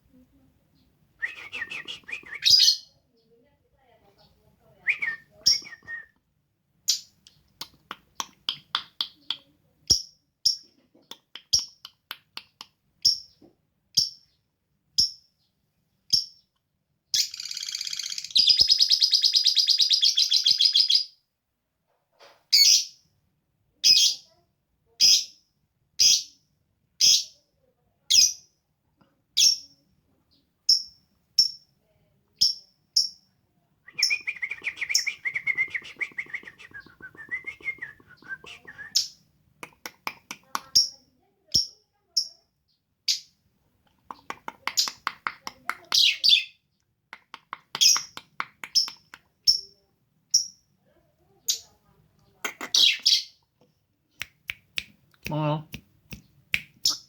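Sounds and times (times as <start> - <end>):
lovebird chirping: 0.8 - 3.0, 4.2 - 6.0, 17.1 - 21.2, 33.9 - 39.2, 47.8 - 50.6, 52.4 - 53.4, 56.2 - 57.0.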